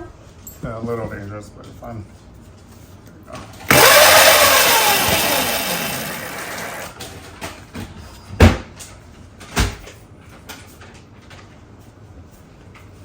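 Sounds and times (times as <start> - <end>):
electric motor whine spinning down: 3.7 - 6.9.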